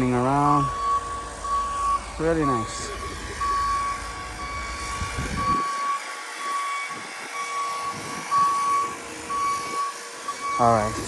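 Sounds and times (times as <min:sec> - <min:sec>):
low rumble: 0:00.0 - 0:05.7
backup alarm beeping: 0:00.0 - 0:11.0.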